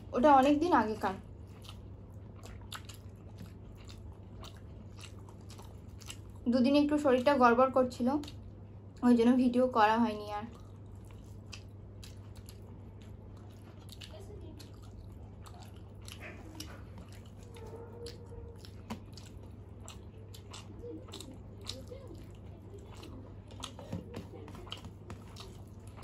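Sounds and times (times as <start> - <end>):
steady low hum: 0.0 - 26.0
people chewing and lip-smacking: 1.2 - 7.4, 8.0 - 9.1, 10.4 - 26.0.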